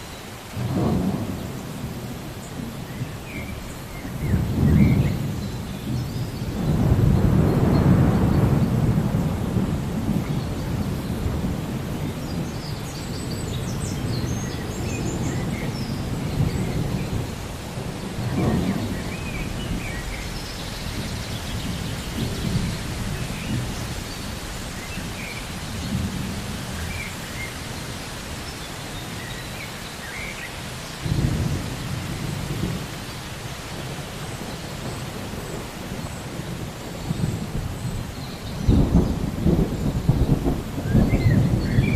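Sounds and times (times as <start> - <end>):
steady rain: 0.0 - 41.9
rolling thunder: 0.6 - 27.2, 31.0 - 33.1, 33.7 - 41.9.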